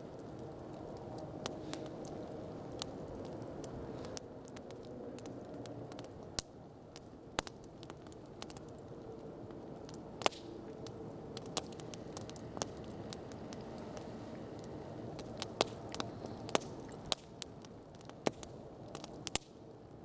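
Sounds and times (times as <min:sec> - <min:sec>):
campfire crackling and popping: 0:00.0 - 0:20.0.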